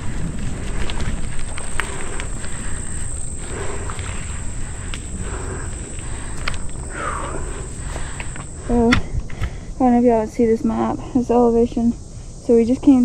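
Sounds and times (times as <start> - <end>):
insects droning: 0.0 - 13.0
wind rumbling on microphone: 0.0 - 13.0.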